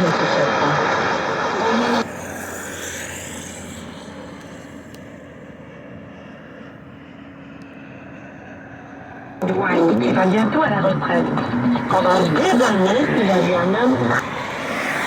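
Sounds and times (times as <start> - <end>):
broadcast voice: 0.0 - 2.0, 9.4 - 14.2
radio static hiss: 0.0 - 2.1.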